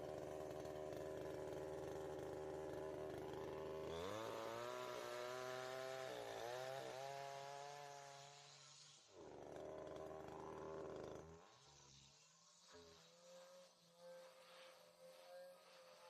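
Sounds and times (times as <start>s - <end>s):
chainsaw engine running: 0.0s - 12.1s.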